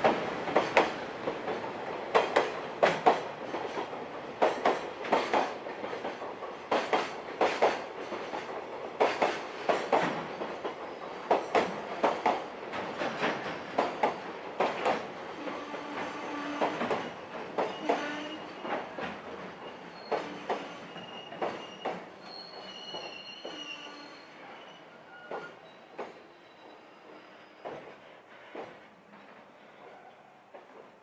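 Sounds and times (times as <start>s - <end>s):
train wheels clattering over joints: 2.1s - 15.0s
wheels squealing on rail: 10.8s - 11.6s, 15.6s - 30.0s.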